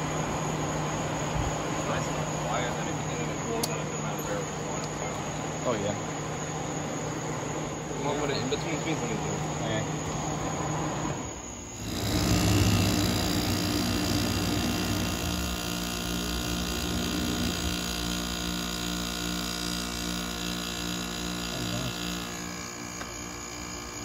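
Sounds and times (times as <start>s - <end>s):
air conditioner blower rushing: 0.0s - 24.0s
air conditioner compressor hum: 0.0s - 24.0s.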